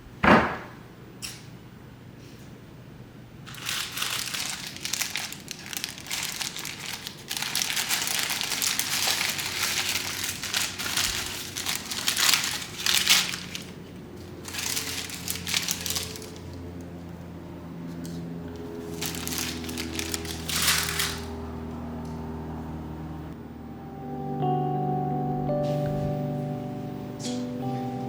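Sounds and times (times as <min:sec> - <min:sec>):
wrapper crinkling: 0:03.4 - 0:16.9, 0:18.0 - 0:21.5.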